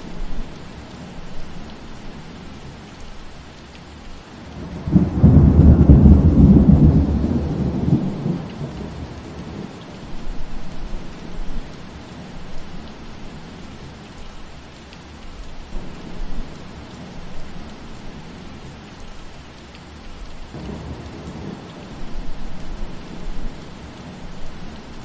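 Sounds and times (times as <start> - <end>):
steady rain falling: 0.0 - 25.0
thunder rumbling: 4.5 - 11.7, 20.5 - 25.0.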